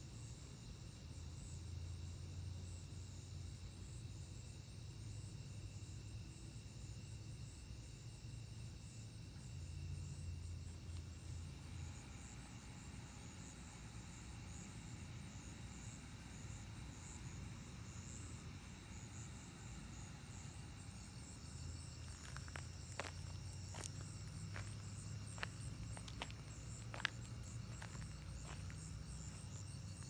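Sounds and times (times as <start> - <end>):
crickets and insects trilling: 0.0 - 30.0
low steady hum: 9.5 - 30.0.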